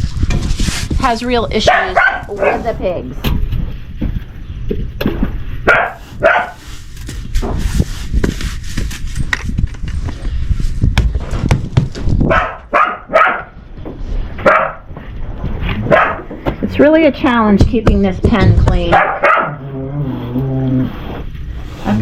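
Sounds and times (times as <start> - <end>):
dog barking: 1.6 - 2.8, 5.6 - 6.6, 12.3 - 13.6, 14.4 - 14.9, 15.8 - 16.3, 18.9 - 19.6.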